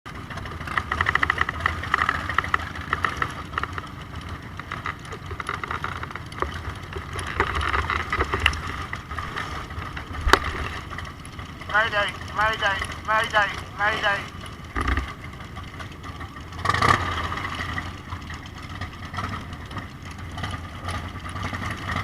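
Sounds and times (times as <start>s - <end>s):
motorcycle engine rumbling: 0.1s - 22.0s
rapid even ticking: 0.6s - 16.6s.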